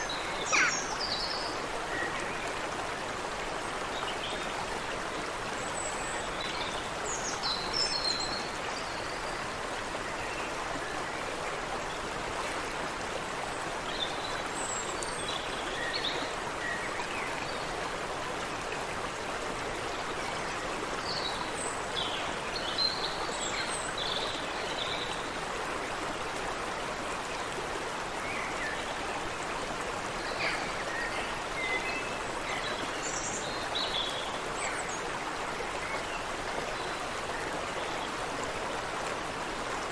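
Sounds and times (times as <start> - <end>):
songbirds chirping: 0.0 - 12.2
stream running: 0.0 - 39.9.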